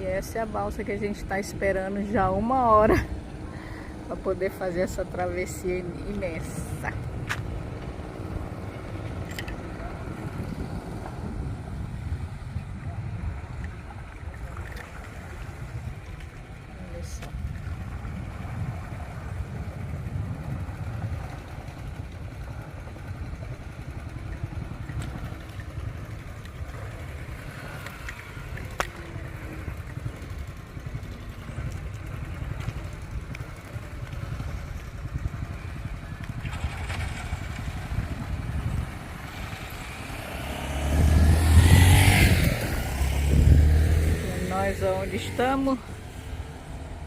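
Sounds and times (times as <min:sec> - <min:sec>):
low rumble of vehicle engines: 0:00.0 - 0:47.0
motor vehicle passing close: 0:24.6 - 0:47.0.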